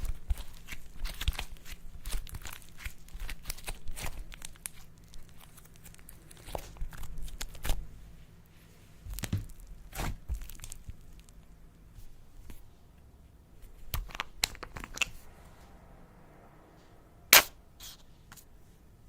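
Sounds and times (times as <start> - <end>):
slime popping and crackling: 0.0 - 7.9, 9.0 - 11.5.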